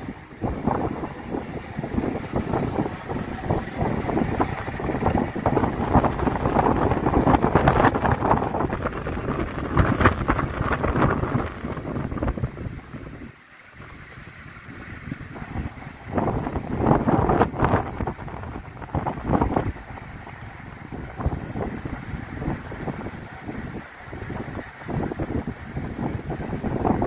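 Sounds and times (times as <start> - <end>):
rail clatter: 0.0 - 13.0
trains rumbling: 0.0 - 27.0
wind buffeting microphone: 0.0 - 27.0.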